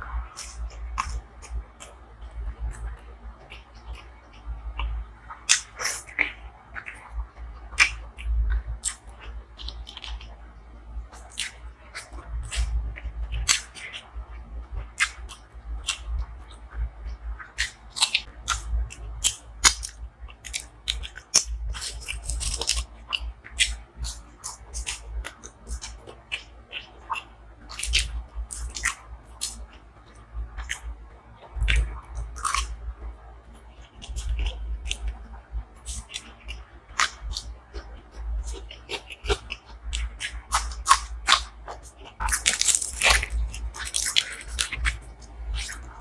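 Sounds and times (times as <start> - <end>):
person chewing food: 0.3 - 2.0, 2.7 - 7.1, 7.8 - 10.3, 11.1 - 14.0, 15.0 - 16.6, 17.4 - 32.8, 33.7 - 35.2, 35.8 - 46.0
sharp mouth clicks and smacks: 0.4 - 2.0, 4.8 - 7.1, 7.8 - 10.3, 11.1 - 14.1, 15.0 - 16.3, 17.5 - 30.9, 31.6 - 32.8, 33.8 - 35.2, 35.8 - 46.0.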